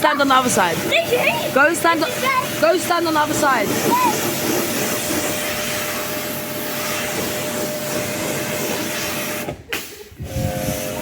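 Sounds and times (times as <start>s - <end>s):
pressure washer spraying: 0.0s - 11.0s.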